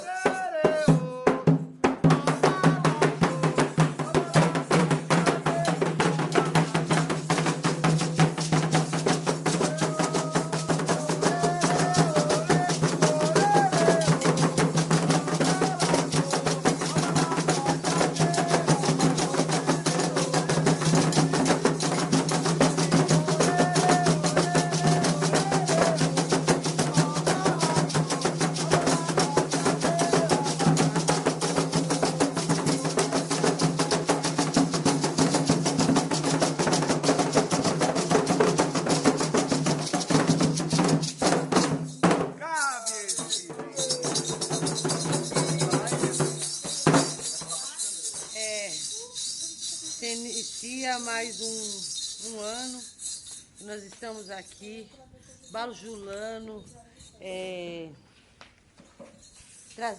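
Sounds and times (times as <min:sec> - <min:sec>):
voices singing a chant: 0:00.0 - 0:08.5, 0:09.1 - 0:39.2, 0:42.6 - 0:50.8
hand drums beating: 0:00.0 - 0:52.9
rattling percussion: 0:00.0 - 0:57.6, 0:58.9 - 0:59.9.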